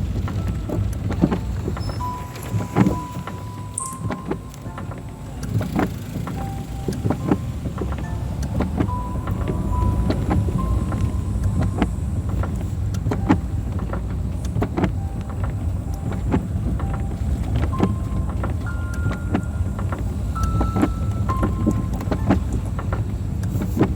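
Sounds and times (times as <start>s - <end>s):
car road and engine rumble: 0.0s - 23.9s
raindrops ticking on car: 0.0s - 23.9s
brief squeaky tones: 0.4s - 12.6s.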